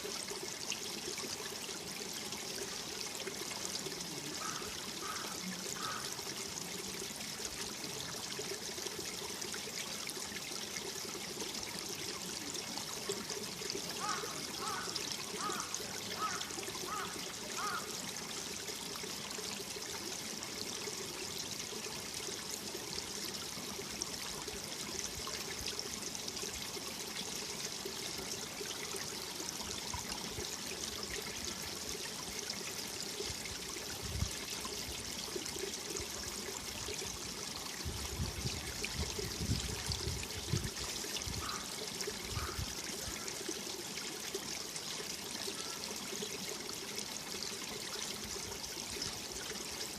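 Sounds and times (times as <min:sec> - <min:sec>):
stream running over rocks: 0:00.0 - 0:49.9.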